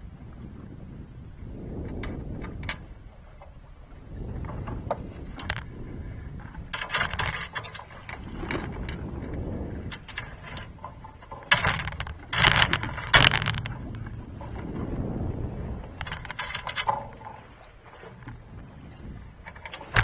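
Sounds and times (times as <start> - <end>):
steady low rushing: 11.8 - 17.3.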